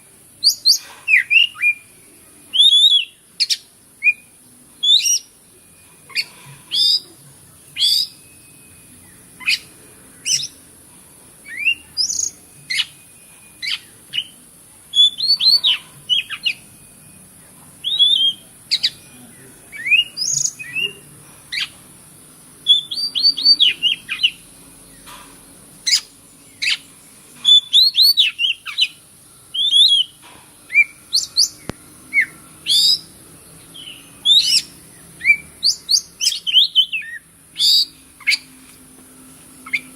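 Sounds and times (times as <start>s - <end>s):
bird singing chirps and whistles: 0.4s - 5.4s, 6.0s - 7.1s, 7.8s - 10.6s, 11.4s - 17.2s, 17.8s - 21.8s, 22.6s - 25.1s, 25.8s - 38.5s.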